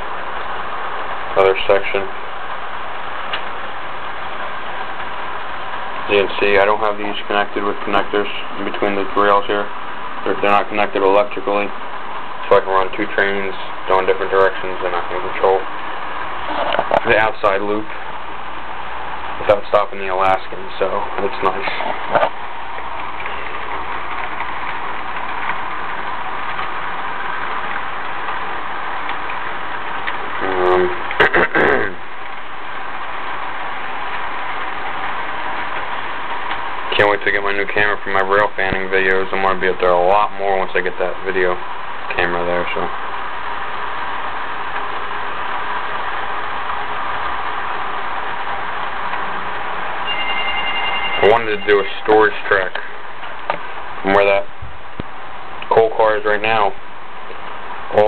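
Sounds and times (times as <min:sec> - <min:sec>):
wheels rolling on track: 0:19.4 - 0:54.4.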